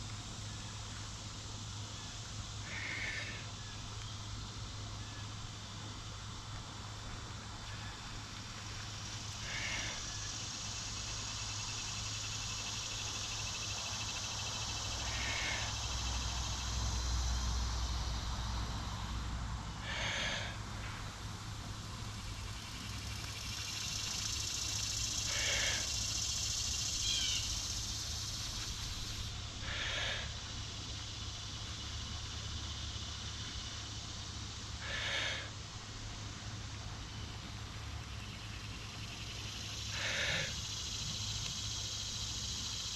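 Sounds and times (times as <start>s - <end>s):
person blowing long breaths: 19.8s - 20.6s, 25.3s - 26.0s, 29.6s - 30.4s, 34.8s - 35.5s
sharp inhale: 19.8s - 20.6s, 25.2s - 26.0s, 29.6s - 30.4s, 34.8s - 35.6s, 39.9s - 40.6s.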